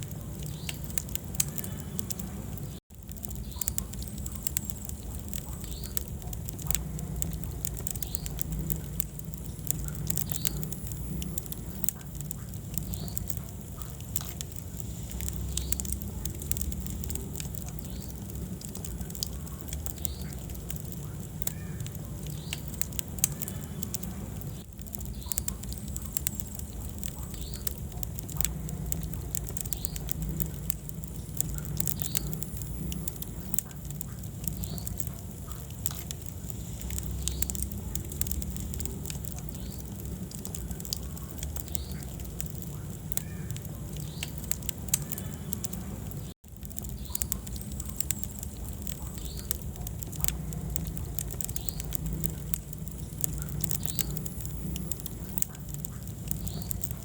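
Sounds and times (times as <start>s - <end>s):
fire crackling and popping: 0.0s - 57.0s
fire flames rumbling: 0.0s - 57.0s.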